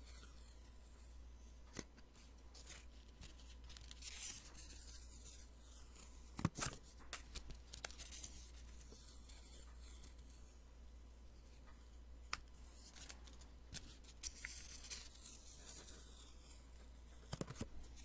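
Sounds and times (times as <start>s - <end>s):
paper rustling: 2.6s - 9.4s, 12.7s - 16.5s.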